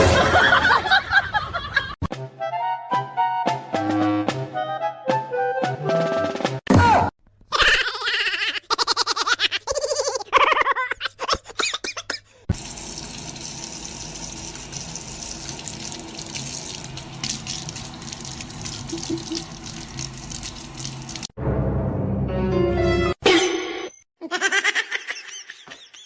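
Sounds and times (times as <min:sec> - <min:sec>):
running water hiss: 0:12.5 - 0:21.3.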